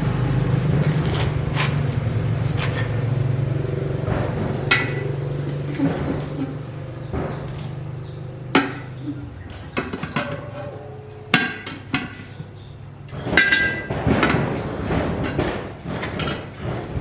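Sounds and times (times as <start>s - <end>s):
sharp metallic strikes: 3.8s - 9.4s
metal tools clinking: 4.4s - 16.6s.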